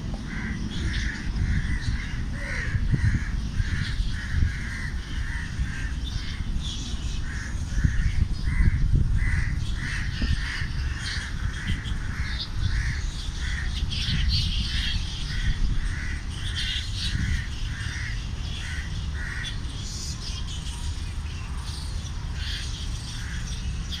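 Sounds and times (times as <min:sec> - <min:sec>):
bird calling in short calls: 0:00.0 - 0:03.2
wind rumble on microphone: 0:00.0 - 0:24.0.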